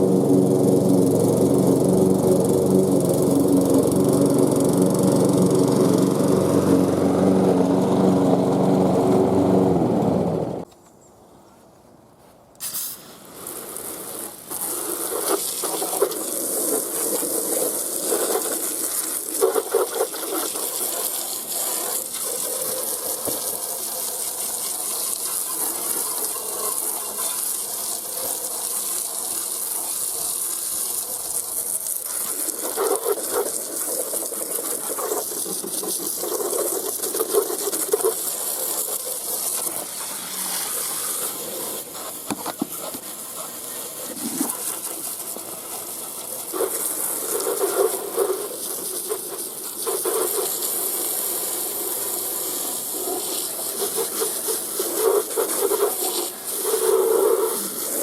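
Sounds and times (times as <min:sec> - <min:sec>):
lawn mower engine running: 0:00.0 - 0:10.7, 0:13.3 - 0:58.0
steady hiss: 0:12.6 - 0:58.0.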